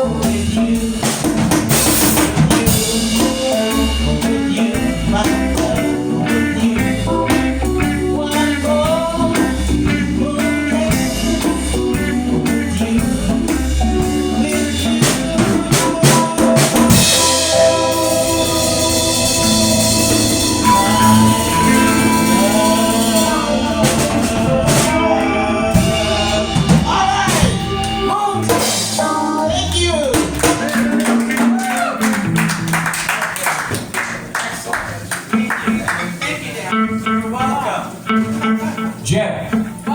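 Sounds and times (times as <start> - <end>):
live band playing: 0.0 - 39.9
melodic lead line: 2.6 - 32.6.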